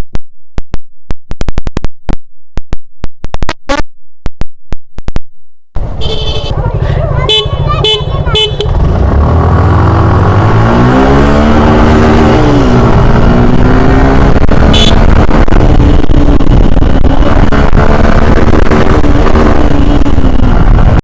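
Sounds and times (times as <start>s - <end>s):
motorcycle engine accelerating: 5.8s - 21.0s.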